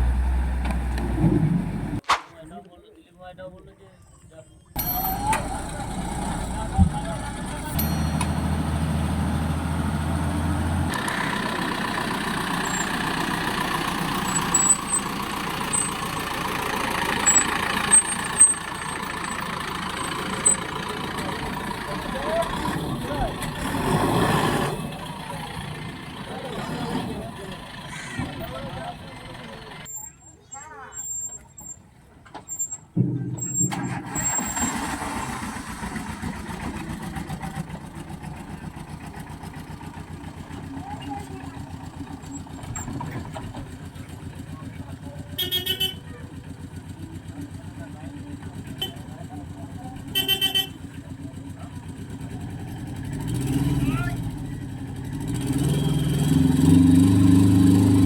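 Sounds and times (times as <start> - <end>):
heavy vehicle engine running: 0.0 - 2.0, 4.8 - 58.0.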